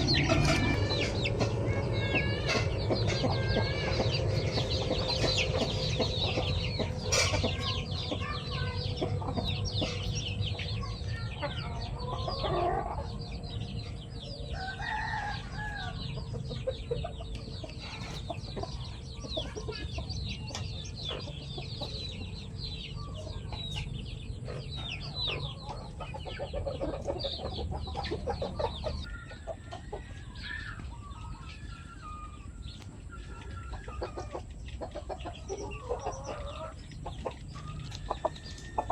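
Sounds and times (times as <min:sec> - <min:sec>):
low rumble: 0:00.0 - 0:25.8
chickens clucking: 0:00.0 - 0:38.9.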